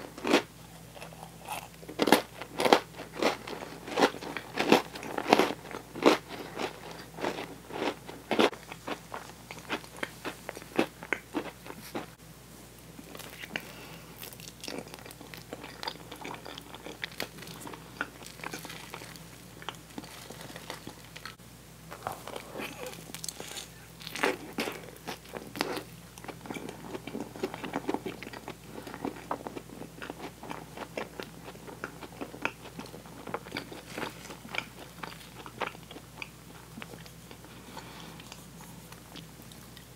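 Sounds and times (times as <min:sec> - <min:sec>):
chewing sticky marshmallow: 0:13.0 - 0:39.9.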